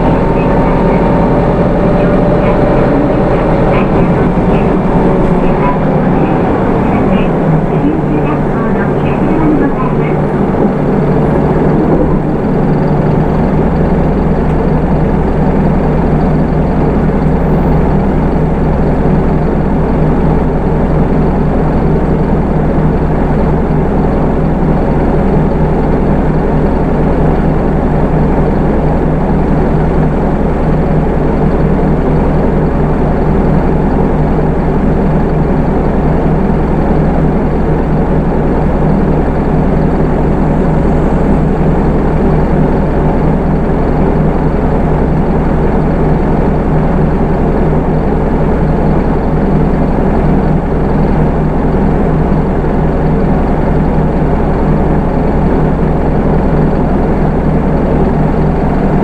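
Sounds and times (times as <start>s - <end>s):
bus diesel engine humming: 0.0s - 59.0s.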